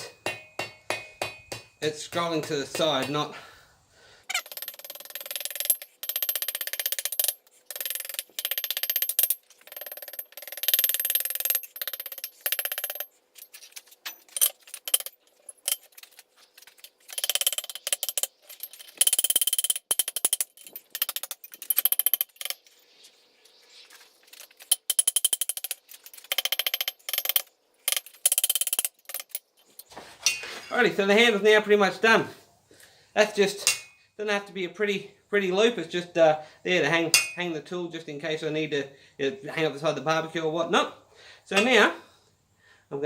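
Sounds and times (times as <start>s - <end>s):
hammer striking steel on anvil: 0.0s - 3.2s, 33.6s - 34.0s, 37.1s - 37.4s.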